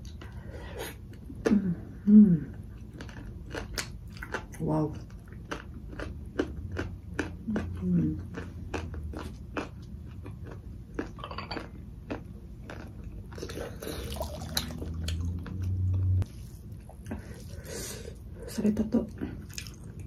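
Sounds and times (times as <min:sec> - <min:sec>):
chewing: 0:02.5 - 0:16.1, 0:19.4 - 0:20.0
low hum: 0:06.1 - 0:20.0.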